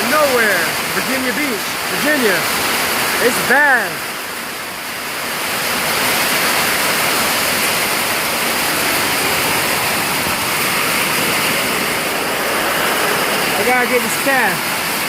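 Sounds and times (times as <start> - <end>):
heavy rain: 0.0 - 15.0
strong wind: 3.9 - 15.0.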